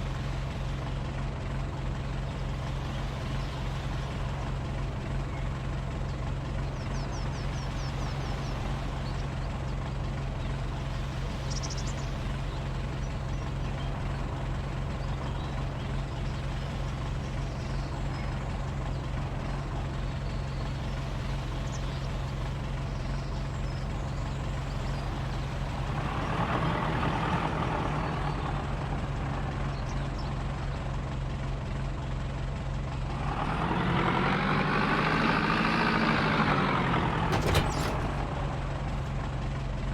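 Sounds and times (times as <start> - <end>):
large engine droning: 0.0 - 39.9.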